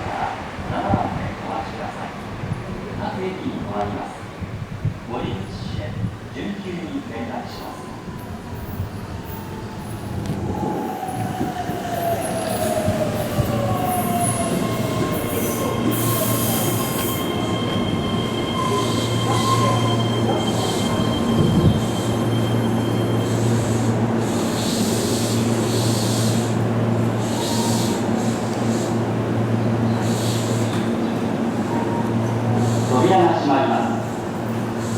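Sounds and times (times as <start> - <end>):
train low hum: 0.0 - 34.9
train wheels squealing: 8.2 - 26.5, 27.1 - 28.9.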